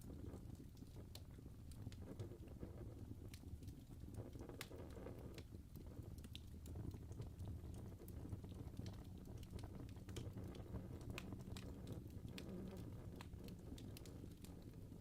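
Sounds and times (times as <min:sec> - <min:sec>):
fire crackling: 0:00.0 - 0:15.0
soft low rumble: 0:00.0 - 0:15.0.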